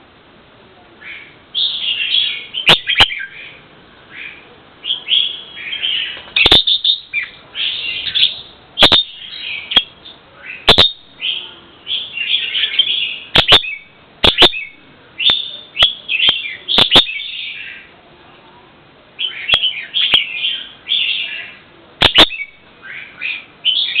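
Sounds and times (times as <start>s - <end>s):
bird chirping: 1.0s - 17.9s, 19.2s - 24.0s
sharp clicks: 13.4s - 14.6s, 22.0s - 22.4s.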